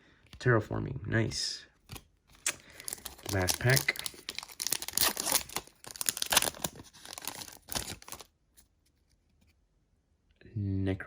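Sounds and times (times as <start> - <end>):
foil wrapper tearing and crinkling: 2.4 - 8.3.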